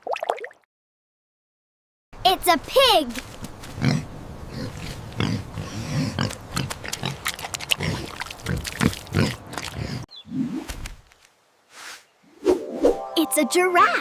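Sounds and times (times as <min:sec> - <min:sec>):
pig grunting: 0:03.8 - 0:10.1.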